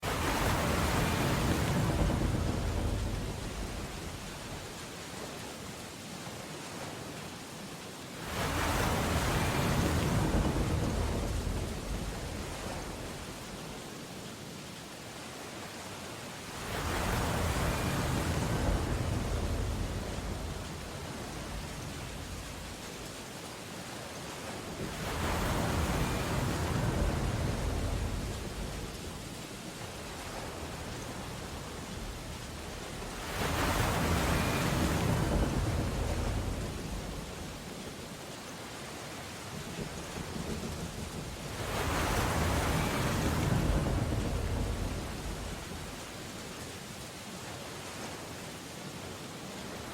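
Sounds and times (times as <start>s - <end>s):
ocean surf crashing: 0.0s - 49.9s
rain-storm hiss: 0.0s - 49.9s
deep rumbling thunder: 0.1s - 4.7s, 9.0s - 13.4s, 24.8s - 29.4s, 30.1s - 37.6s, 39.6s - 46.0s
rain on window glass: 39.3s - 42.8s.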